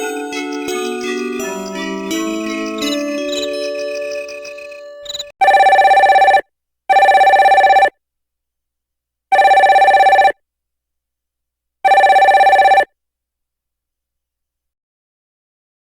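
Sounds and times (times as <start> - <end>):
chiming melody ringtone: 0.0 - 7.9, 9.4 - 10.3, 11.9 - 12.8
telephone bell ringtone: 0.0 - 7.9, 9.3 - 10.3, 11.9 - 12.9.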